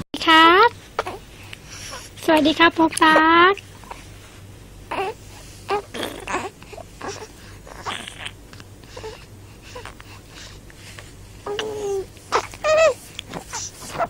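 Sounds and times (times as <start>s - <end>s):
faint low hum: 0.0s - 14.0s
infant babbling and cooing: 0.6s - 1.2s, 4.9s - 10.0s, 11.4s - 14.0s.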